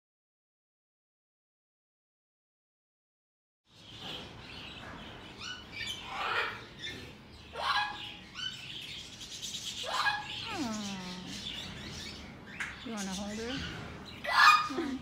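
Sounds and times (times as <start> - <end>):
birds chirping and squawking: 3.7 - 15.0.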